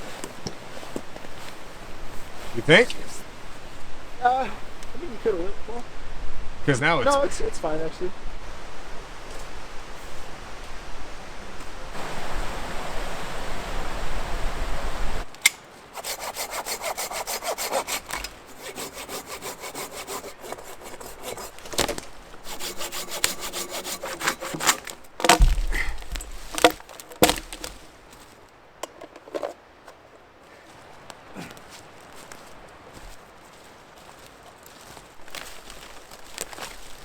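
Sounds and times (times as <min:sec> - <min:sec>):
hand saw cutting wood: 0:15.9 - 0:27.8
loud knocks: 0:24.5 - 0:27.7.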